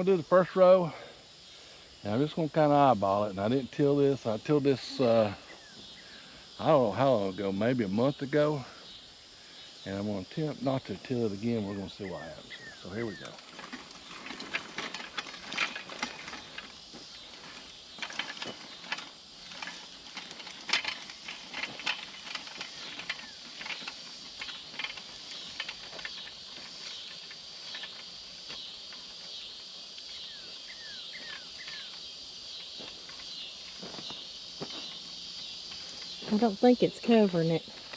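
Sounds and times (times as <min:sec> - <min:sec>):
seeder clicking and rattling: 0:13.2 - 0:28.1.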